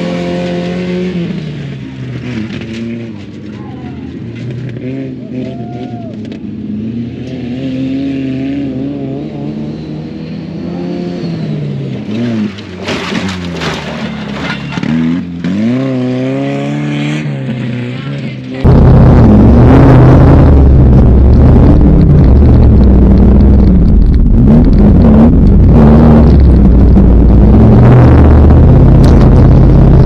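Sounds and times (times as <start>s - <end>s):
race truck engines revving: 0.0s - 30.0s
rushing gritty noise: 18.1s - 30.0s.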